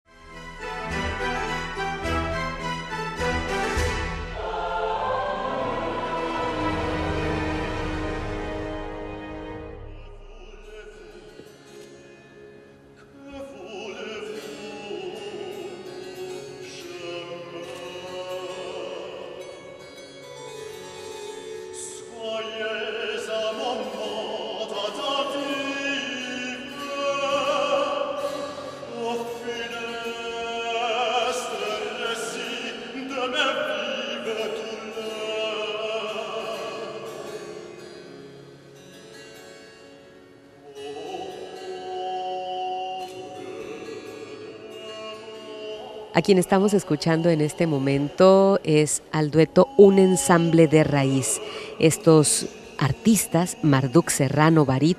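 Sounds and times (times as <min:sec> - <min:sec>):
harpsichord playing: 0:00.1 - 0:09.9
baritone singing: 0:00.3 - 0:12.0, 0:13.0 - 0:20.5, 0:21.7 - 0:37.9, 0:40.6 - 0:54.9.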